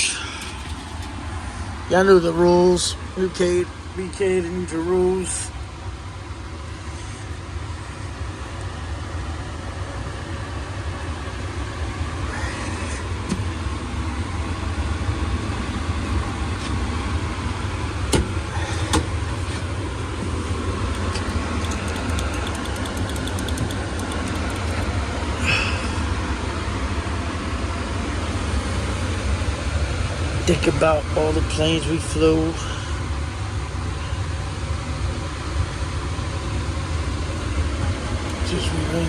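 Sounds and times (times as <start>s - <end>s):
low motor hum: 3.0s - 31.4s
rapid ticking: 20.7s - 25.0s
sharp clicks: 20.9s - 25.0s.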